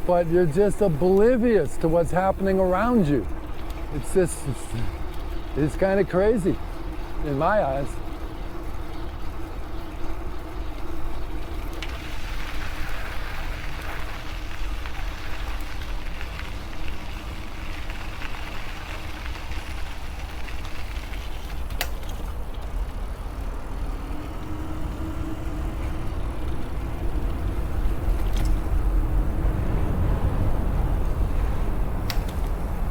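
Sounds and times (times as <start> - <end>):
steady low hum: 0.0 - 32.9
wind buffeting microphone: 22.7 - 32.9.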